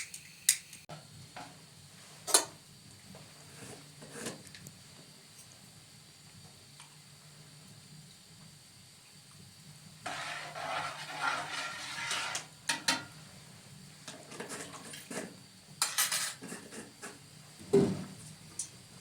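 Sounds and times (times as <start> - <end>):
dishes and cutlery clattering: 14.3 - 16.9.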